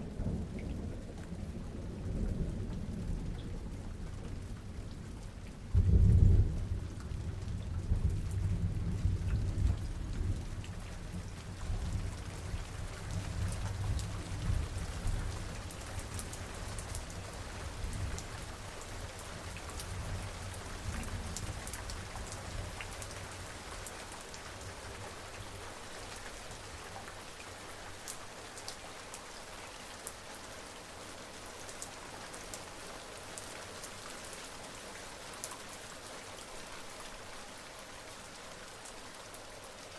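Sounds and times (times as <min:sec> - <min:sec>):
steady rain falling: 0:00.0 - 0:39.9
thunder clap and rumble: 0:05.8 - 0:10.6.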